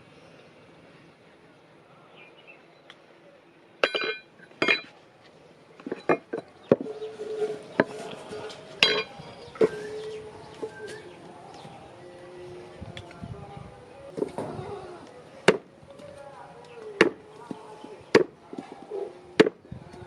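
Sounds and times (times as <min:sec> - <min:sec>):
hammer clanging on steel: 0:03.8 - 0:04.9, 0:05.8 - 0:09.8.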